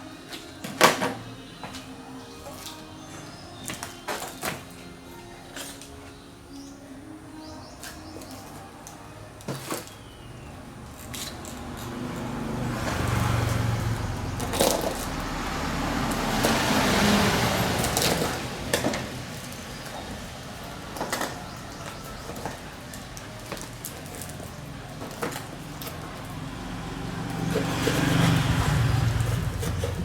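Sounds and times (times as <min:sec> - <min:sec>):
road vehicle passing: 0:09.0 - 0:30.0.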